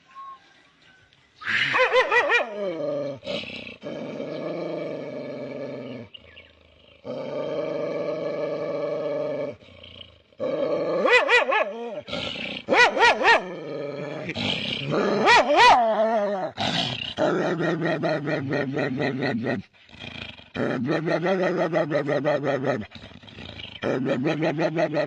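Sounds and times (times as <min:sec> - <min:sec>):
dog howling and growling: 0:10.4 - 0:12.1, 0:12.7 - 0:16.6.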